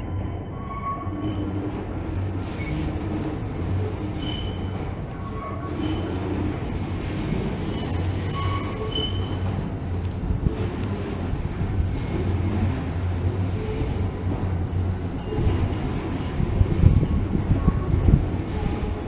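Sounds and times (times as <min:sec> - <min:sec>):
train wheels rumbling on rail: 0:00.0 - 0:19.0
high wheel squeals: 0:02.4 - 0:03.1, 0:04.1 - 0:06.7, 0:07.4 - 0:09.4.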